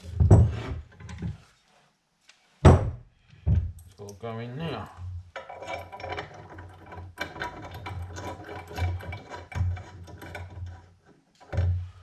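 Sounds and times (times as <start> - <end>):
metal parts clicking and rattling: 5.3 - 11.8.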